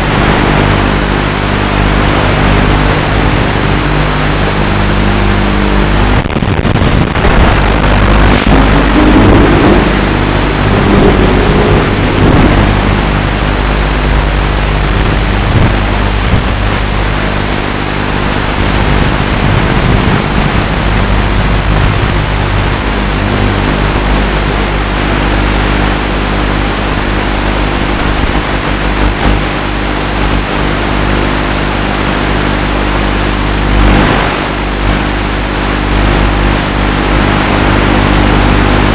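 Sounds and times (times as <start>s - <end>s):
drone motors whining: 1.9s - 17.4s.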